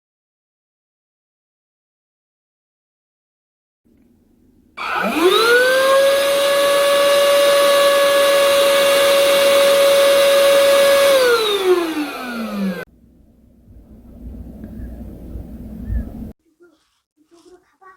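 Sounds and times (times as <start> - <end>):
handheld vacuum cleaner motor whine: 4.8 - 12.9.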